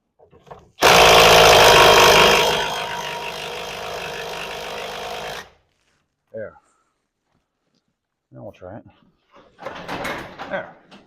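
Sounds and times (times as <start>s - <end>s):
motor running: 0.8s - 5.4s.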